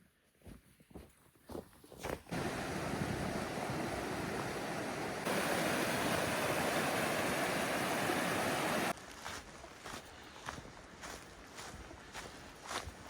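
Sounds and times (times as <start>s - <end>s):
flowing water rushing: 2.3s - 8.9s.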